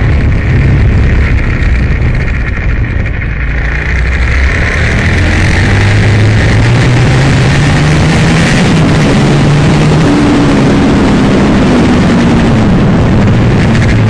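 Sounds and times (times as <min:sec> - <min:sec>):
motorcycle engine revving: 0:00.0 - 0:14.0
steady rush of noise: 0:00.0 - 0:14.0.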